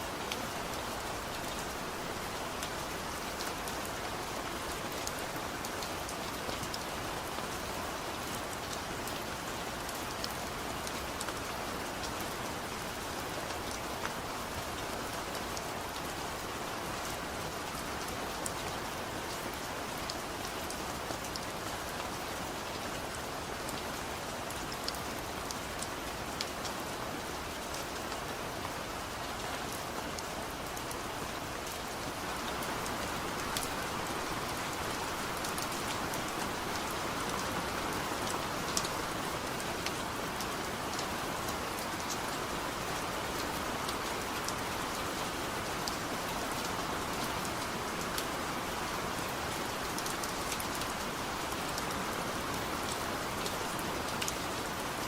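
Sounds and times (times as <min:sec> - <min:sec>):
heavy rain hiss: 0:29.8 - 0:54.1.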